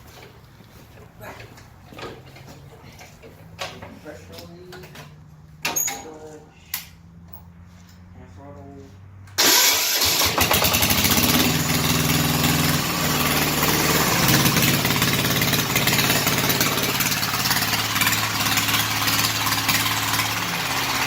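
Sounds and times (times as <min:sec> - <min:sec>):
diesel engine starting and idling: 0:09.2 - 0:21.0.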